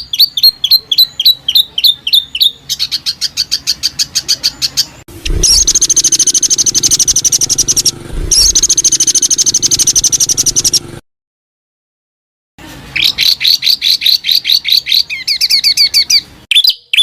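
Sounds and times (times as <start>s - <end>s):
songbird rapid high notes: 0.0s - 11.0s.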